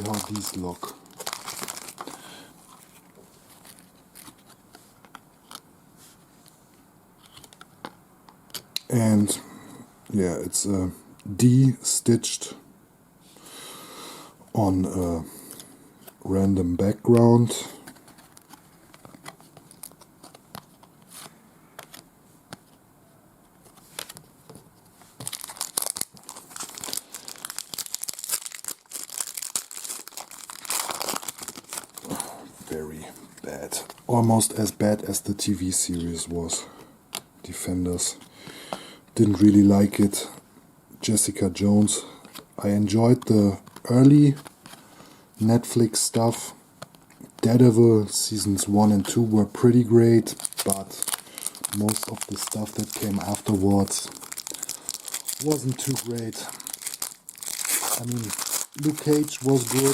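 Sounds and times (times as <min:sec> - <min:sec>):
foil wrapper rustle: 0:00.0 - 0:04.4, 0:25.2 - 0:32.3, 0:50.0 - 0:59.9
cards being shuffled: 0:17.0 - 0:22.8, 0:23.6 - 0:32.2, 0:50.2 - 0:59.9.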